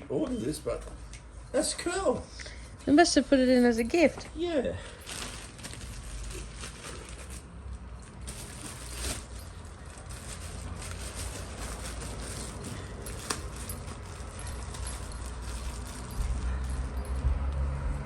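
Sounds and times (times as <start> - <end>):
packaging rustling and crinkling: 4.8 - 17.2.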